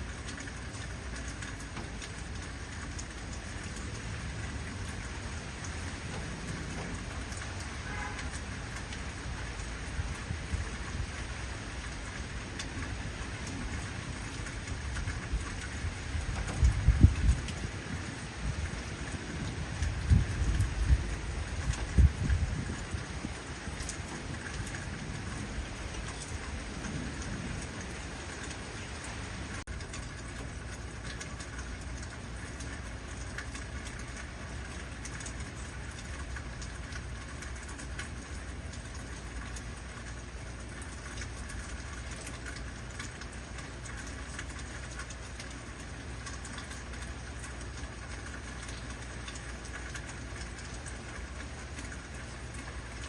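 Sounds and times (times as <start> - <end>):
heavy rain falling: 0.0 - 53.0
thunder rumble: 13.5 - 29.4.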